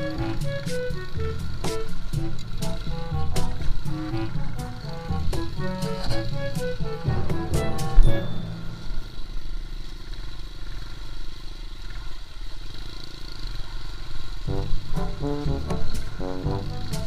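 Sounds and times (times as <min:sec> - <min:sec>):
background music: 0:00.0 - 0:09.1, 0:14.5 - 0:17.0
engine low rumble: 0:00.0 - 0:17.0.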